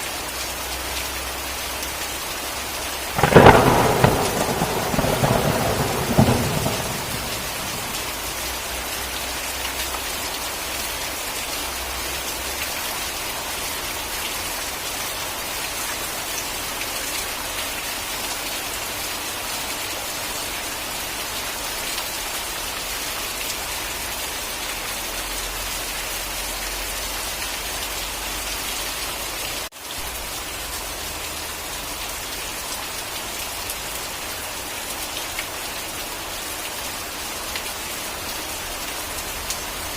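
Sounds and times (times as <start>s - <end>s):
heavy rain falling: 0.0s - 39.9s
thunder rumble: 3.1s - 8.8s.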